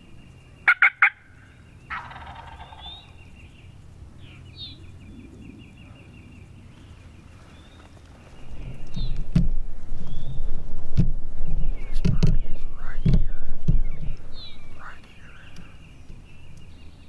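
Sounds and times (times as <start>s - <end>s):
turkey gobbling: 0.6s - 1.3s, 1.9s - 3.2s
sharp loud calls: 0.6s - 3.8s, 13.9s - 16.2s.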